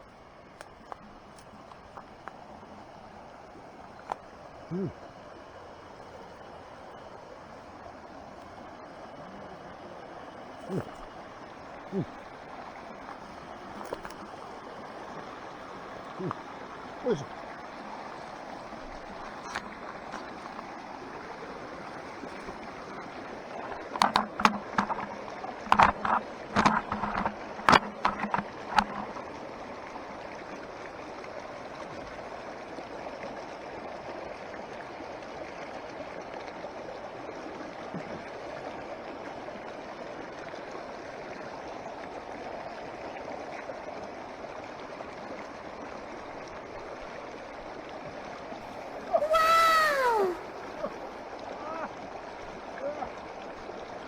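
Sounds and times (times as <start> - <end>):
mountain stream running: 0.0 - 54.0
sharp knocks and clatters: 23.9 - 29.2.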